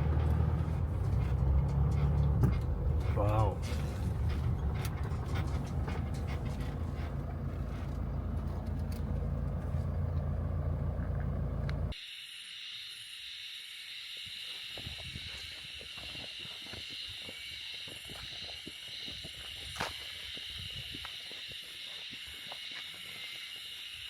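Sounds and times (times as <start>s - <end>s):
van engine rumble: 0.0s - 12.0s
insect chorus: 11.9s - 24.0s.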